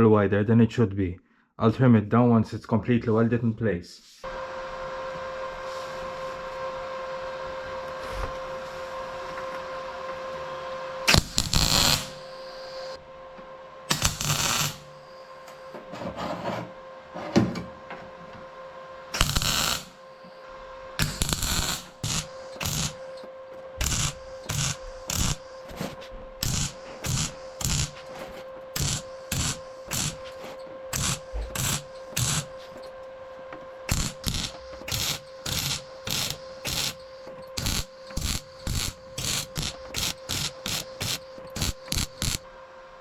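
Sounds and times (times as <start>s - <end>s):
steady hum: 4.2s - 43.0s
welding crackle: 11.1s - 13.0s, 13.9s - 15.2s, 19.1s - 20.0s, 21.0s - 23.2s, 23.8s - 32.9s, 33.9s - 42.4s.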